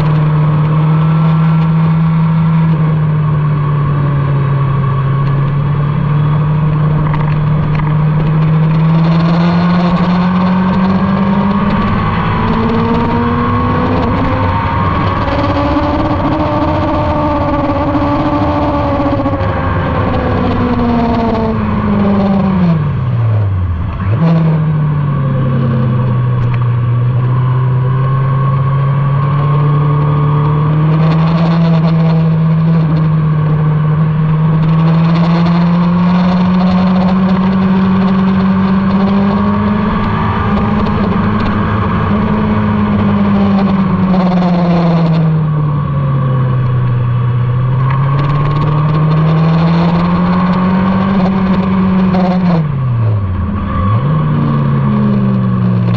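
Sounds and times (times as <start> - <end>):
motorcycle engine revving hard: 0.0 - 55.9.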